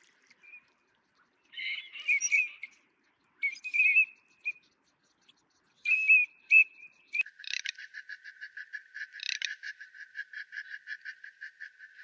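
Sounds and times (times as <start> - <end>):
bird warbling calls: 0.4 - 2.8, 3.4 - 12.0
frog pulsed call: 7.2 - 12.0.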